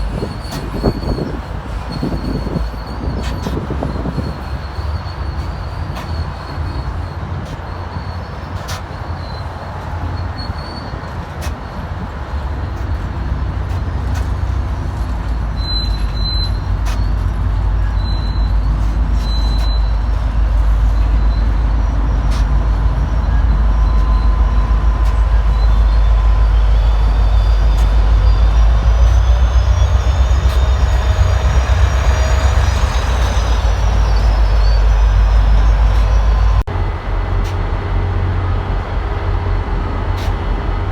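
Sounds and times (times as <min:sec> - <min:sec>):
train rumbling: 0:00.0 - 0:40.9.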